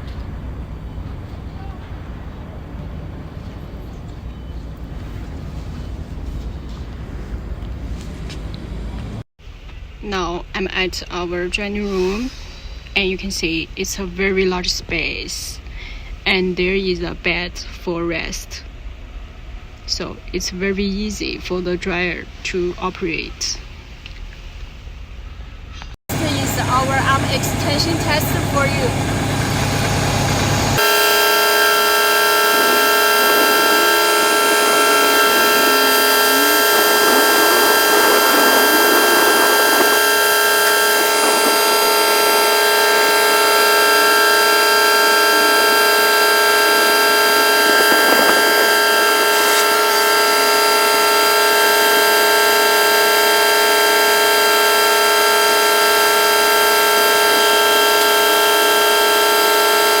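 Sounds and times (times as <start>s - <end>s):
hydraulic pump whine: 26.1s - 60.0s.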